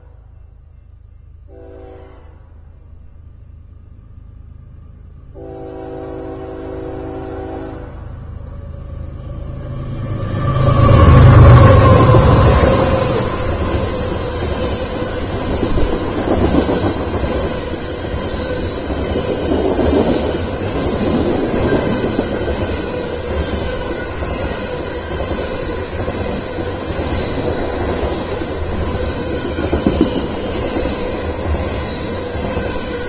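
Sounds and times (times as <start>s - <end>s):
freight train rumbling past: 0.0s - 33.0s
wheels clattering on rail: 11.5s - 33.0s.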